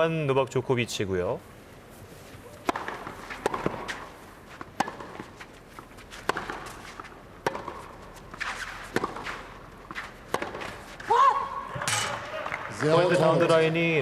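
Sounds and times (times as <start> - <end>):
tennis racquets hitting ball: 2.4 - 12.6.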